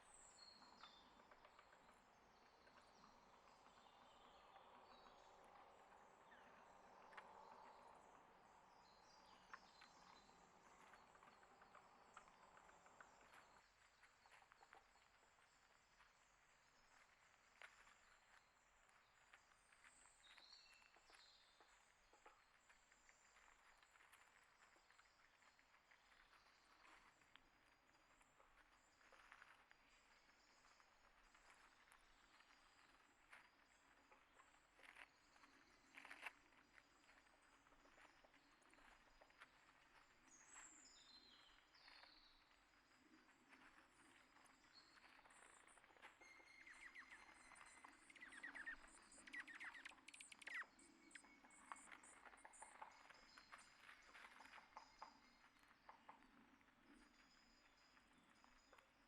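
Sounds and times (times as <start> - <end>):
small clicks and ticks: 0.0 - 40.6, 42.5 - 59.0
faint high chirping: 0.0 - 59.0
faint high bird chirps: 28.1 - 56.2.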